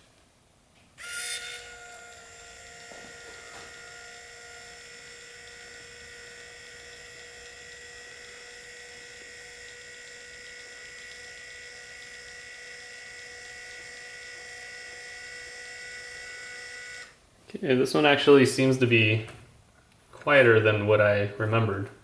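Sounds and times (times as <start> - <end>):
linear actuator motor whine: 1.0 - 17.2.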